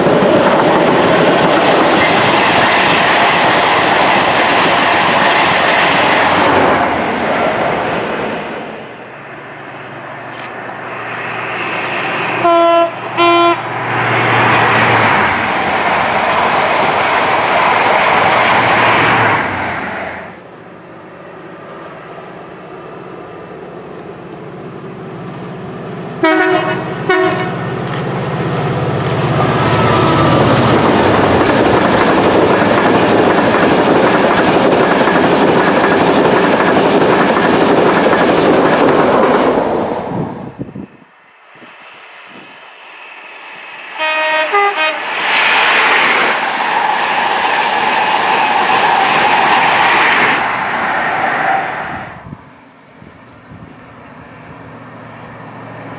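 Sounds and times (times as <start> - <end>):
train rushing past: 0.0 - 55.9
train horn blasts: 12.4 - 13.7, 26.2 - 27.6, 44.0 - 45.1.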